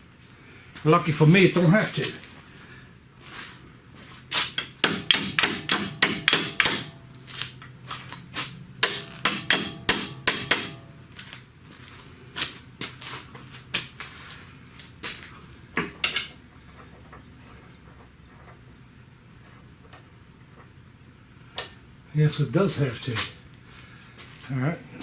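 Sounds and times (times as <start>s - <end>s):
hammer striking metal: 4.6s - 7.0s, 8.8s - 11.0s.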